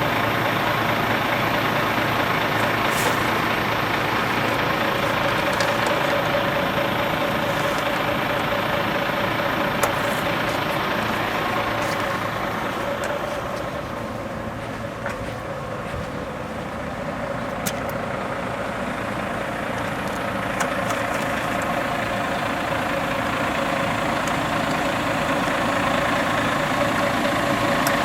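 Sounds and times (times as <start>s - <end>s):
compressed air hissing: 0.2s - 14.8s.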